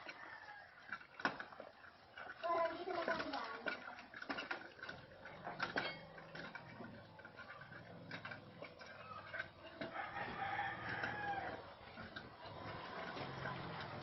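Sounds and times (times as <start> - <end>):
rooster crowing: 0.0 - 1.0, 9.0 - 11.8
puppies eating from a plate: 0.0 - 14.0.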